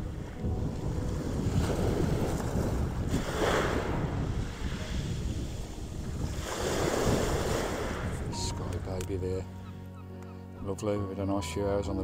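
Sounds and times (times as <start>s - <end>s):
small waves washing onto beach: 0.0s - 9.0s
wind buffeting microphone: 0.0s - 10.2s.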